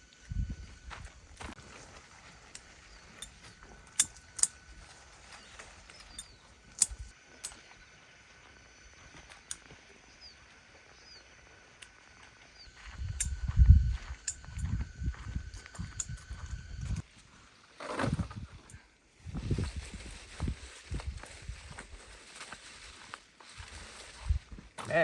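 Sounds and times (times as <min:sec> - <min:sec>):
faint bird chirps: 0:02.7 - 0:06.7.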